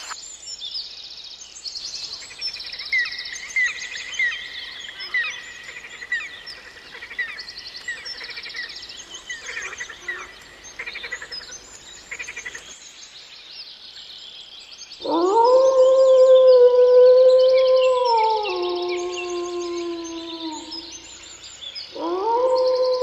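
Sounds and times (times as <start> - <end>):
small birds chirping: 0.0 - 23.0
loud long howl: 15.0 - 21.0, 22.0 - 23.0.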